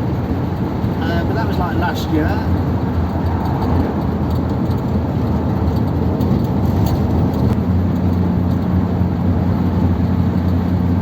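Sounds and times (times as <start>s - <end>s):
car engine running: 0.0s - 11.0s
road noise: 0.0s - 11.0s.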